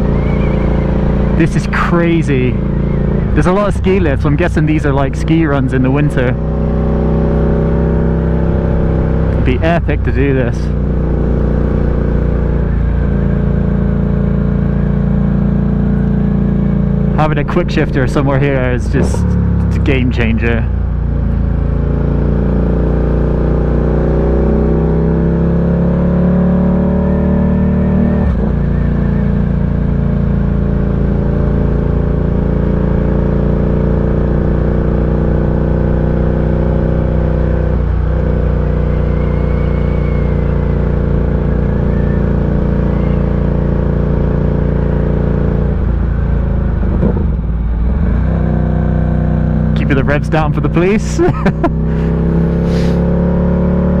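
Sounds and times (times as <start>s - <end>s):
quick gear changes: 0.0s - 7.8s, 49.6s - 53.2s
motorcycle engine running: 0.0s - 26.1s, 28.5s - 54.0s.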